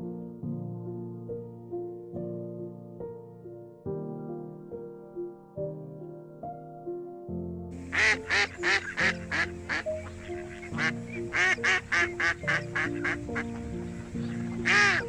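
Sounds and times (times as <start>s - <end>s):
soft piano music: 0.0s - 15.0s
ducks or geese quacking and honking: 7.8s - 15.0s.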